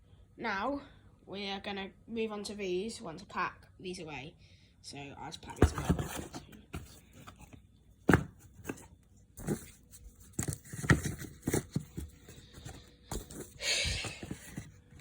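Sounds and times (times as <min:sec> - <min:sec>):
cardboard tubes knocking: 0:08.1 - 0:09.7.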